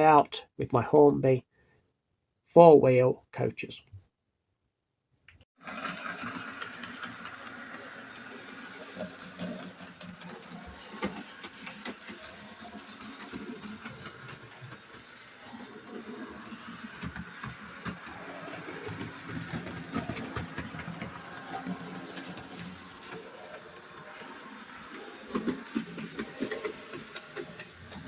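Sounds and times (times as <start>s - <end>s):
small electric motor whirring: 5.6s - 28.0s
wheels clicking on rails: 5.6s - 28.0s.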